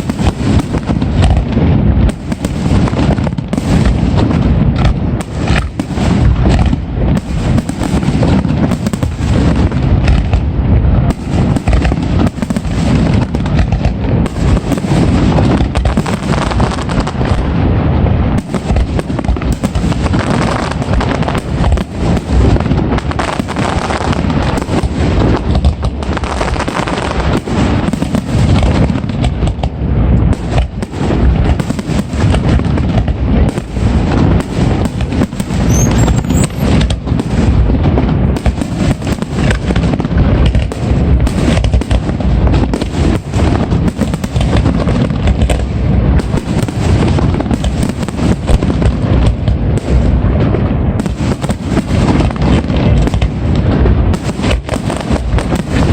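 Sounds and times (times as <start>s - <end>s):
fireworks bangs and booms: 0.0s - 55.9s
deep rumble: 28.6s - 43.9s.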